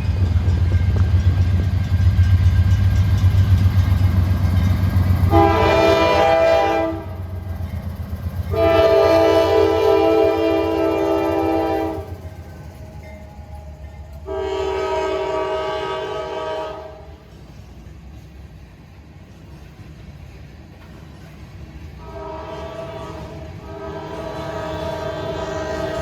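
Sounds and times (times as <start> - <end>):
low rumble of passing train: 0.0 - 26.0
locomotive horn blasts: 5.2 - 7.2, 8.5 - 12.2, 14.2 - 17.2, 22.0 - 26.0.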